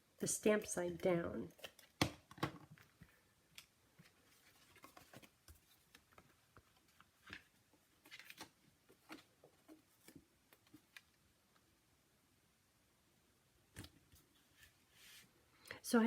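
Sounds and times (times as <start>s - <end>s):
paper materials tapping and rustling: 4.0s - 11.1s.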